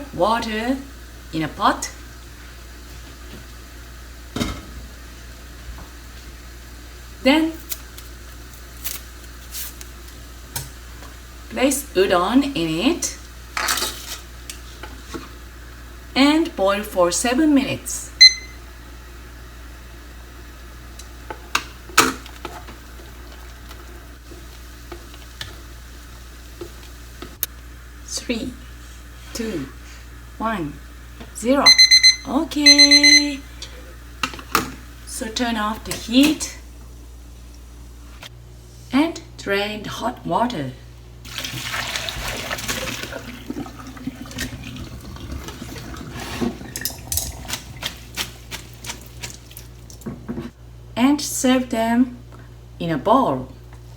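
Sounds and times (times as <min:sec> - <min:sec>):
water pouring into colander: 0:41.3 - 0:50.0.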